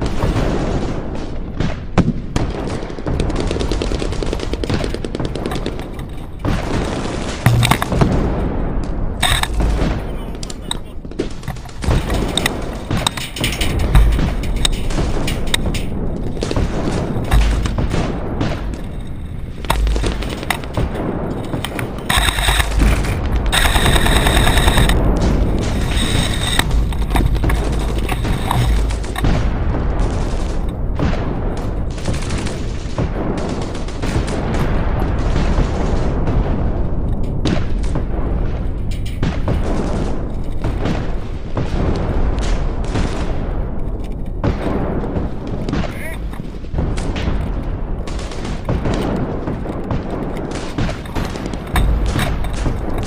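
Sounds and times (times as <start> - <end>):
airsoft guns firing: 0.0 - 53.0
low rumble: 7.4 - 50.5
sharp clicks: 7.5 - 8.0, 9.2 - 10.8, 21.5 - 25.0
electric gun firing full auto: 23.5 - 25.0.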